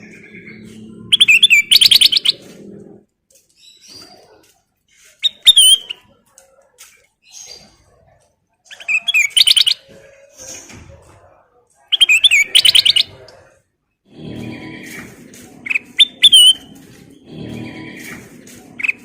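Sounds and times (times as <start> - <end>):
bulbul whistled song: 1.1 - 2.4, 5.2 - 6.0, 8.7 - 9.8, 11.9 - 13.1, 15.7 - 16.8.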